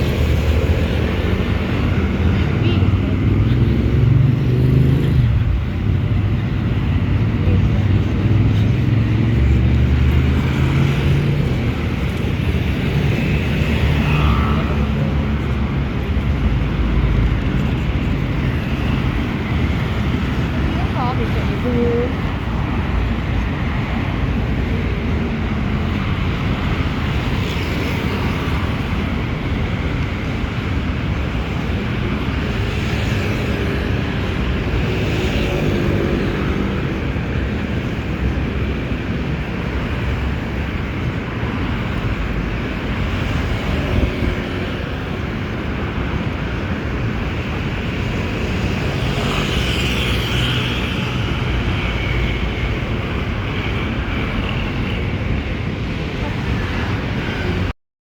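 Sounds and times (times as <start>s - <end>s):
train rumbling: 0.0s - 57.7s.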